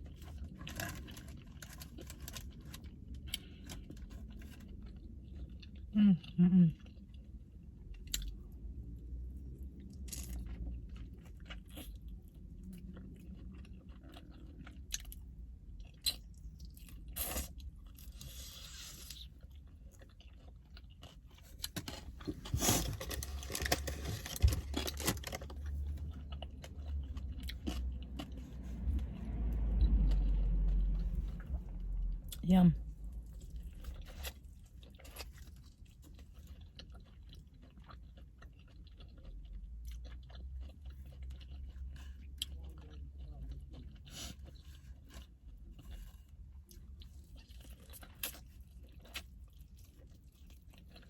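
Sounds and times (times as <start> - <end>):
chewing and crunching food: 0.0 - 51.0
low rumble: 22.2 - 36.0.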